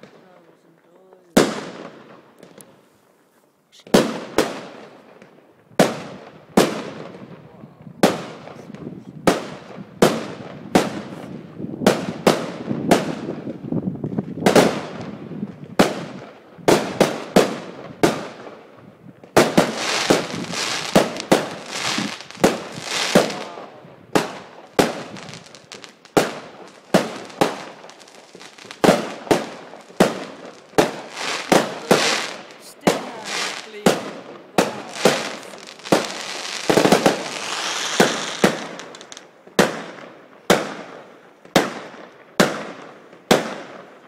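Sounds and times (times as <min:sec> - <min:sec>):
fireworks banging: 0:00.0 - 0:02.8, 0:03.8 - 0:44.0
fireworks crackling: 0:00.0 - 0:03.2, 0:03.8 - 0:44.0.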